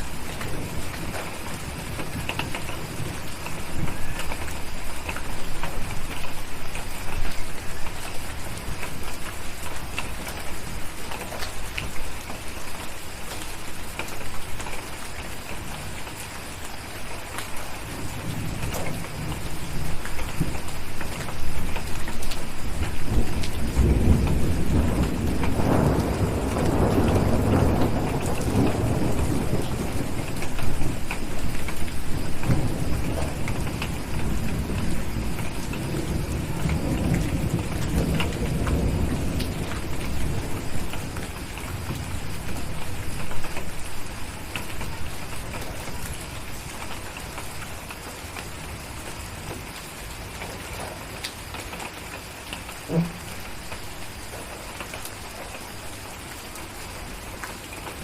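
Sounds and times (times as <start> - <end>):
steady rain: 0.0 - 58.0
rolling thunder: 17.9 - 46.7.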